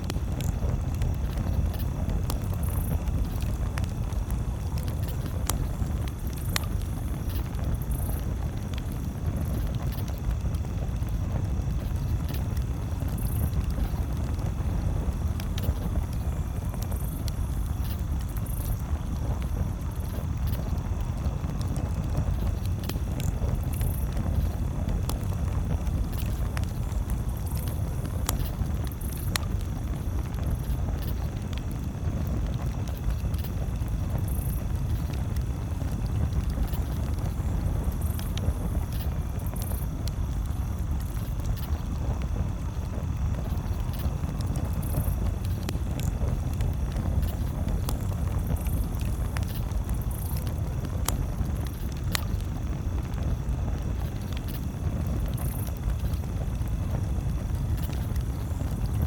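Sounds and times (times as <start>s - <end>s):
campfire crackling and popping: 0.0s - 59.0s
steady low rumble: 0.0s - 59.0s.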